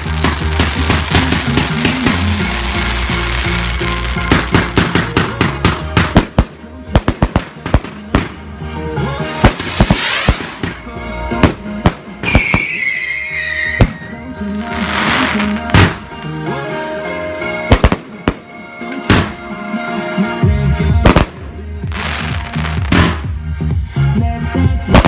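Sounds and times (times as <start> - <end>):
fireworks bangs and crackles: 0.0 - 16.2, 17.6 - 19.6, 20.9 - 23.8, 24.7 - 25.0
music: 0.0 - 25.0
hissing whooshes: 9.2 - 10.9
whistling firework: 9.2 - 10.9, 12.2 - 14.3.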